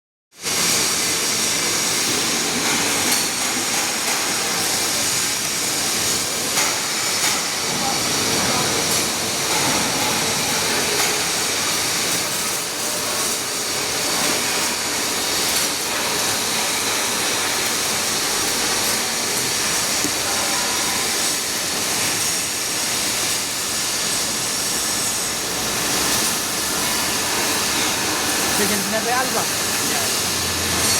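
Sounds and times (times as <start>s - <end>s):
machine drilling metal: 0.4s - 30.9s.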